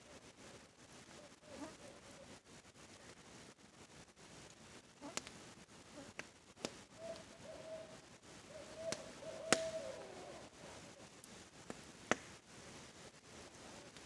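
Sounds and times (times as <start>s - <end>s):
campfire crackles: 0.0s - 14.0s
faint steady hiss: 0.0s - 14.0s
owl hooting: 6.9s - 11.1s.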